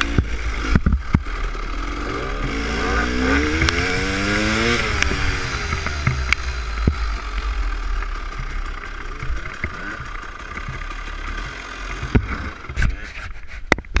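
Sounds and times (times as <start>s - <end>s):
sharp knocks and clunks: 0.0s - 1.3s, 3.5s - 7.2s, 8.3s - 13.0s
dirt bike engine idling: 0.0s - 13.1s.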